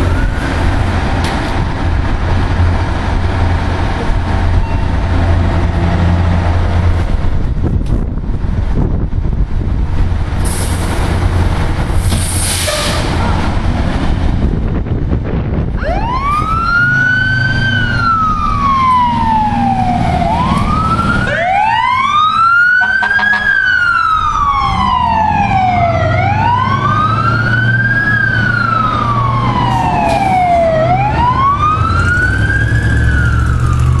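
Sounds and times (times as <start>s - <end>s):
fire engine siren wailing: 0.0s - 2.2s, 15.5s - 34.0s
truck engine rumble: 0.0s - 34.0s.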